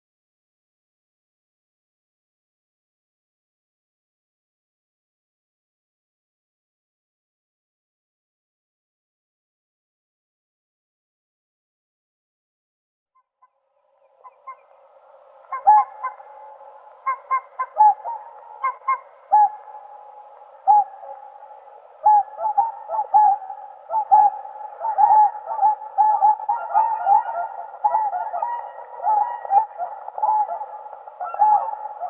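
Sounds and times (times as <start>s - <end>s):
swans honking: 15.4s - 32.0s.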